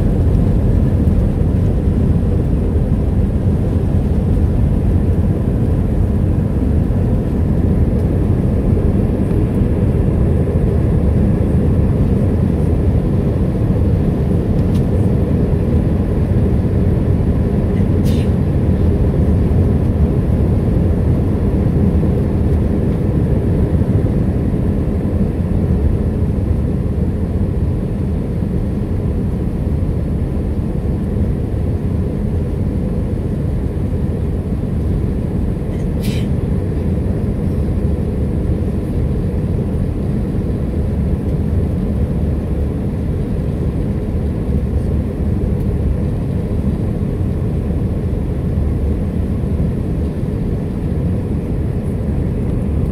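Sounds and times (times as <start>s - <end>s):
aircraft cabin engine noise: 0.0s - 52.9s.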